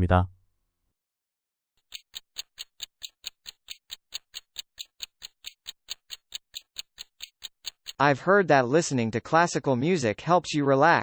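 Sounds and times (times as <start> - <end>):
clock ticking: 1.8 - 8.1.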